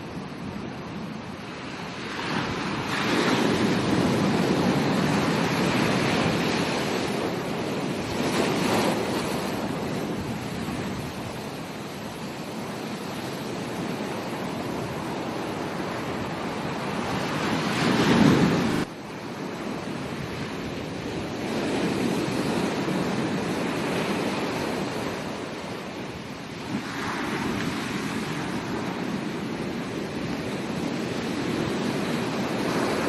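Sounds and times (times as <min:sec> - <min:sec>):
ocean surf washing onto beach: 0:00.0 - 0:33.0.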